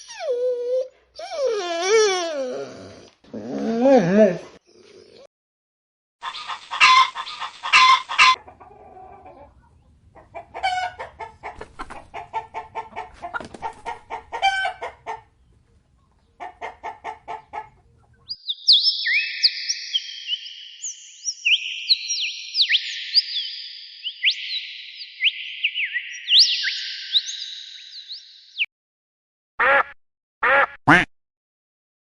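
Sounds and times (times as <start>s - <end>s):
chickens clucking and squawking: 6.2s - 18.3s.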